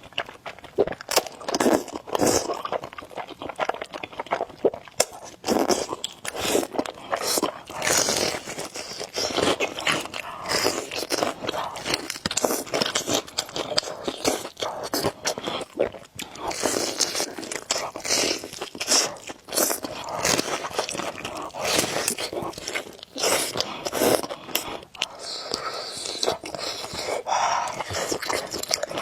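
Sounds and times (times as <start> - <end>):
person chewing and slurping noodles: 0.0 - 29.0.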